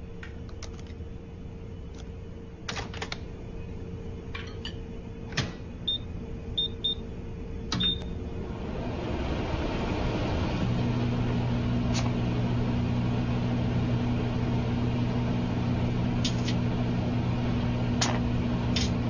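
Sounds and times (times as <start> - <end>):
microwave keypad beeps: 5.9 - 7.0, 7.8 - 8.1.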